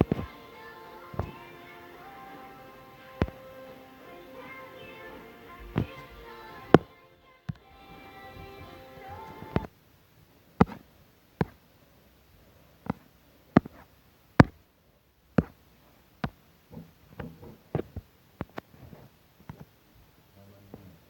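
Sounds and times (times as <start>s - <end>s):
soft rustling: 0.0s - 6.9s, 10.6s - 14.6s, 15.3s - 20.2s
sharp taps: 3.2s - 3.4s.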